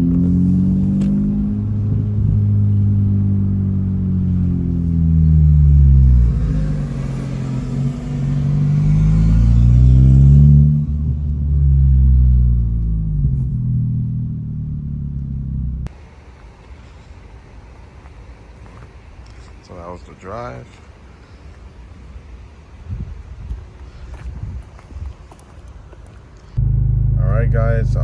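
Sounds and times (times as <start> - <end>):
car engine accelerating: 0.0 - 15.9, 26.6 - 28.0.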